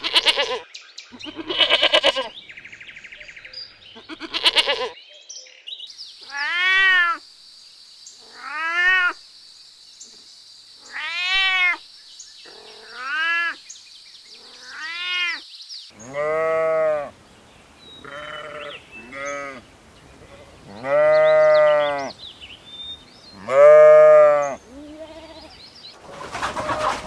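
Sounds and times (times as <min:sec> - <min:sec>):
steady high hiss: 0:18.6 - 0:20.8.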